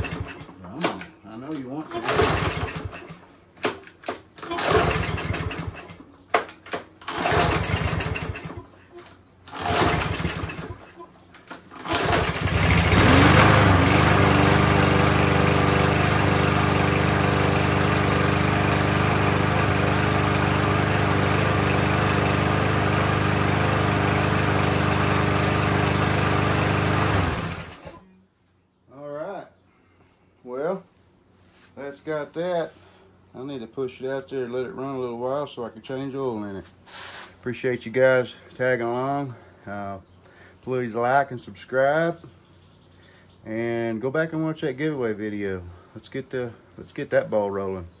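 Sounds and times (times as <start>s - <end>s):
mower engine pull-started: 0.0s - 8.7s, 9.4s - 28.1s.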